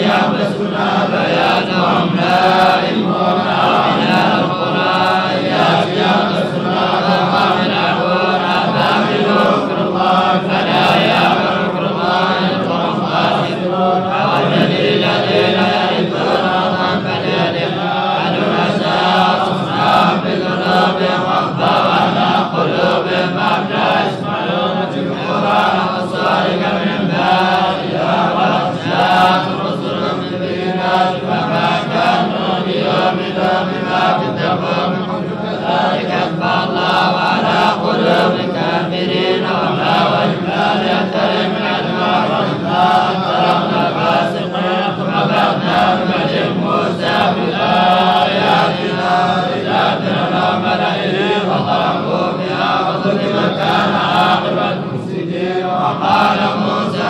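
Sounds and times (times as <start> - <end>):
man chanting recitation: 0.0 - 57.0.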